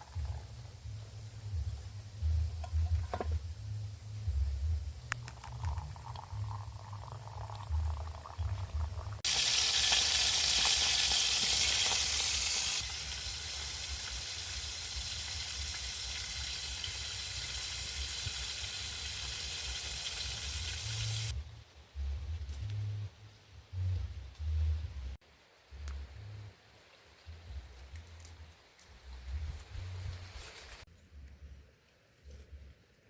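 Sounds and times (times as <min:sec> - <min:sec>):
food sizzling in a pan: 0:09.2 - 0:21.3.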